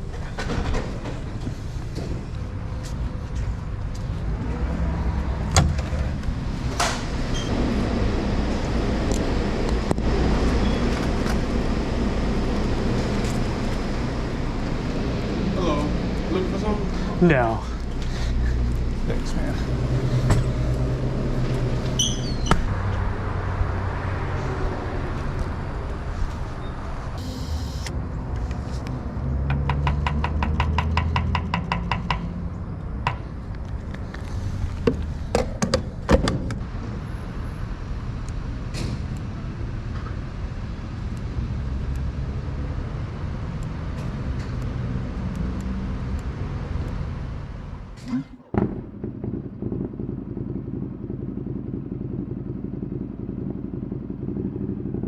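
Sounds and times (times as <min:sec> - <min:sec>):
motorcycle engine running: 0:48.4 - 0:55.0.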